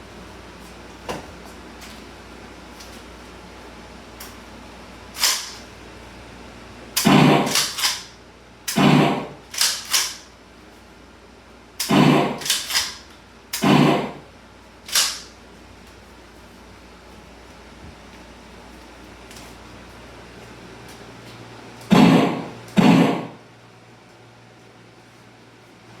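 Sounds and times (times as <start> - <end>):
gunshots: 7.0 - 8.0, 8.7 - 10.0, 11.9 - 12.9, 13.6 - 14.2, 21.9 - 23.4.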